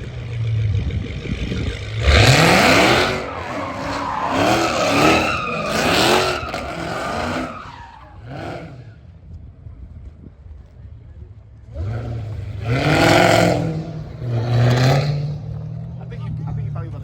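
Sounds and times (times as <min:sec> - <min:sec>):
car engine revving: 0:00.0 - 0:09.0, 0:11.7 - 0:17.0
tyres squealing: 0:02.2 - 0:08.4.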